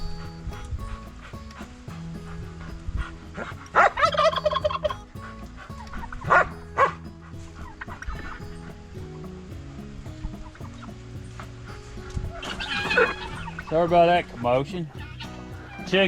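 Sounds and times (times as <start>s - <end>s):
turkey gobbling: 3.0s - 7.0s, 12.3s - 13.8s.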